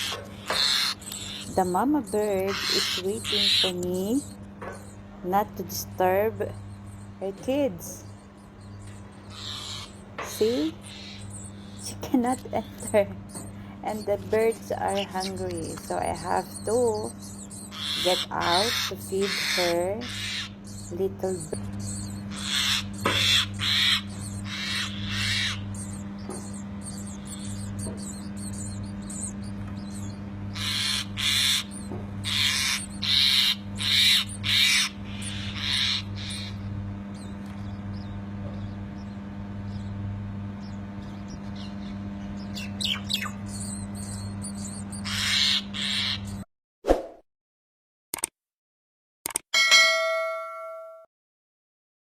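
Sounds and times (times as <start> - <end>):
baby birds begging calls: 0.0 - 46.5
steady low hum: 0.0 - 46.5
single ding: 49.6 - 51.1.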